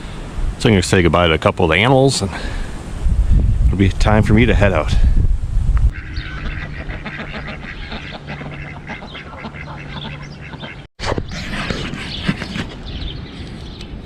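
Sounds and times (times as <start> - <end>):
flock of fowl calling: 5.9 - 10.9.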